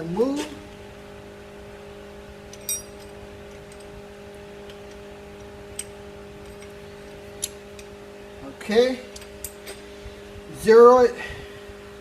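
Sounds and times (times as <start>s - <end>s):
sharp metallic clink: 2.6s - 3.0s.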